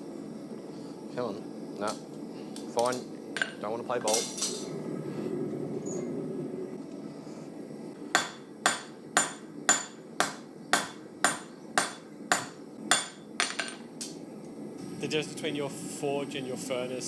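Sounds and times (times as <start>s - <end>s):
hammer striking steel on anvil: 8.2s - 13.6s.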